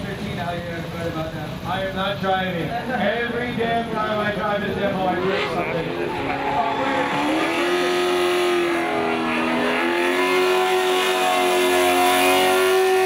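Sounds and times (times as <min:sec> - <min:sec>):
car engine revving hard: 0:04.7 - 0:13.0.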